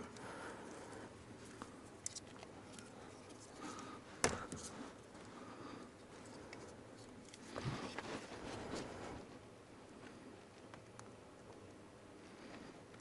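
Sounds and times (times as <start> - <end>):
hands and tools handling wiring: 0.1 - 9.3.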